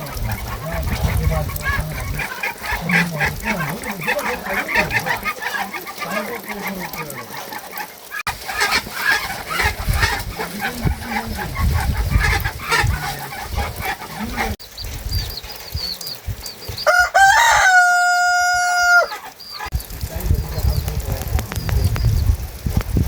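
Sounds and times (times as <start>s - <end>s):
chickens clucking: 0.0s - 22.3s
rooster crowing: 16.8s - 19.4s.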